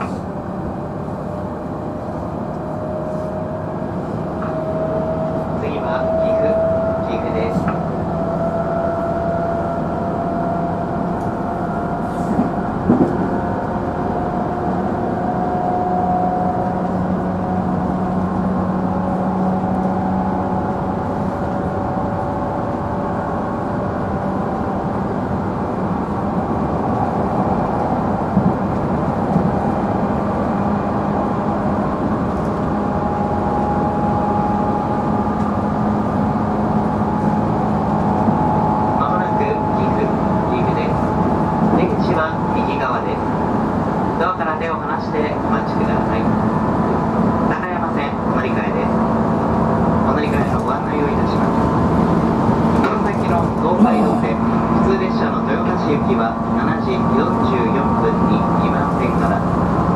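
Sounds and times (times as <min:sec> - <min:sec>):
train motor hum: 0:46.0 - 0:57.0.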